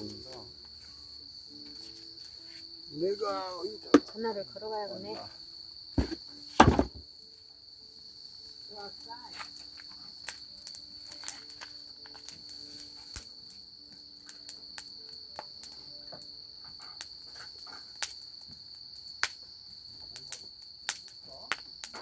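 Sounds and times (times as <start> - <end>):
crickets trilling: 0.0 - 22.0
campfire crackling and popping: 9.0 - 22.0.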